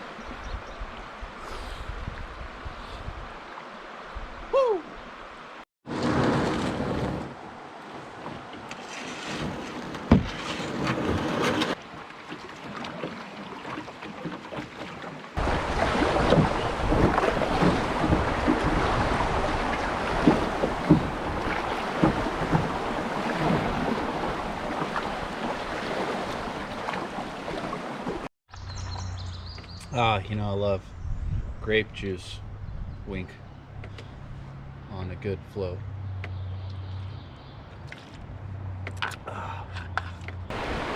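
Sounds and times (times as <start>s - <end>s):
wind on microphone: 0.2s - 3.4s, 15.4s - 26.5s, 30.9s - 33.2s
water splashing around hull: 5.9s - 28.3s, 40.0s - 40.9s.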